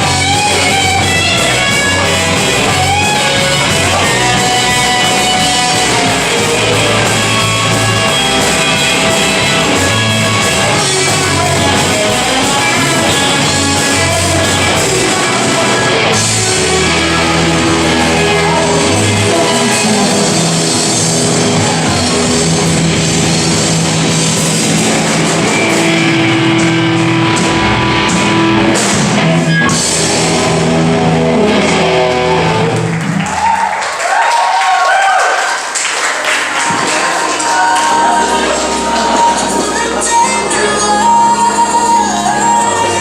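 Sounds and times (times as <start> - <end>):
person singing: 0.0 - 22.2, 36.6 - 43.0
live rock band playing: 0.0 - 33.6, 35.6 - 43.0.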